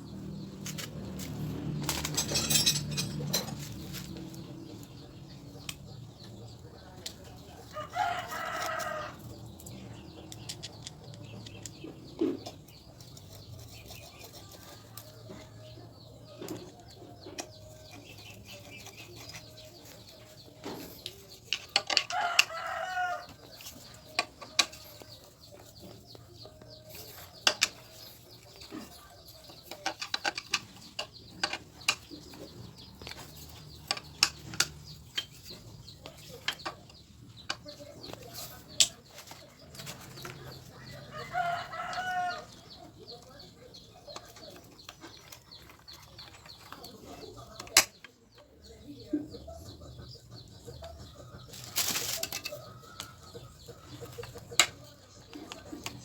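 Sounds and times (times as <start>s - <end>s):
rooster crowing: 7.8s - 9.2s, 22.1s - 23.4s, 41.1s - 42.5s
sharp clicks and knocks: 29.4s - 38.2s.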